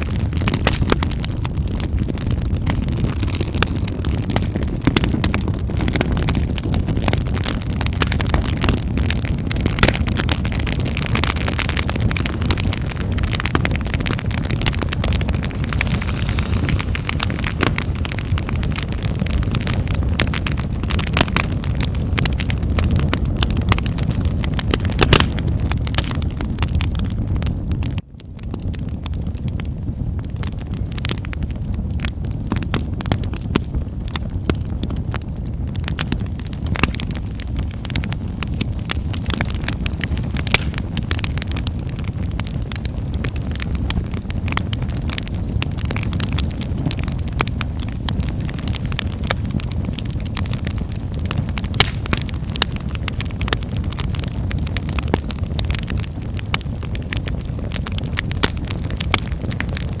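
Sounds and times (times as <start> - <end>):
wood fire crackling and popping: 0.0 - 60.0.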